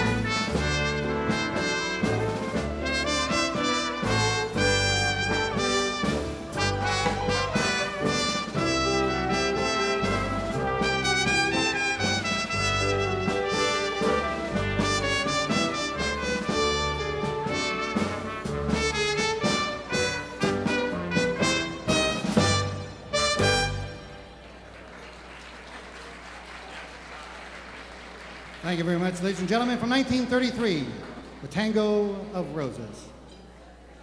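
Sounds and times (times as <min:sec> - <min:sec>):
trumpets and trombones: 0:00.0 - 0:24.7.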